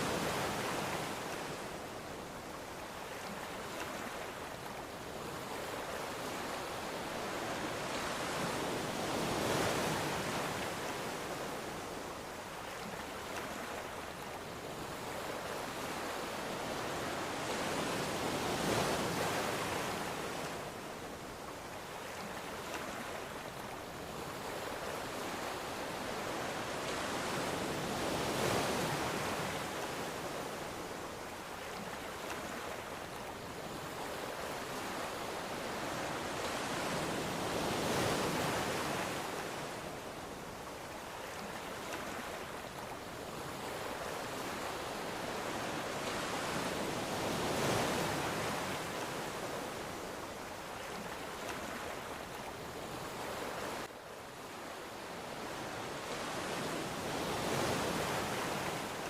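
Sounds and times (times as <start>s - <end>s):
ocean waves breaking: 21.5s - 59.0s.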